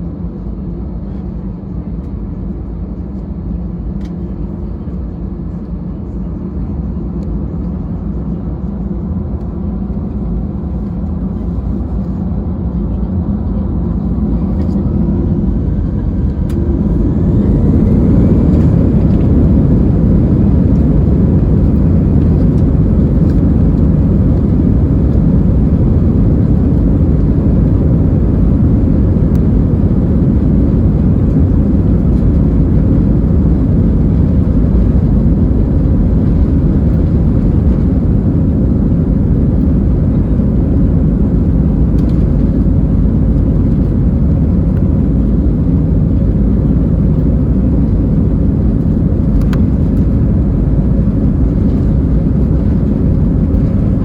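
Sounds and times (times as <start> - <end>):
jet engines spooling up: 13.9 - 54.0.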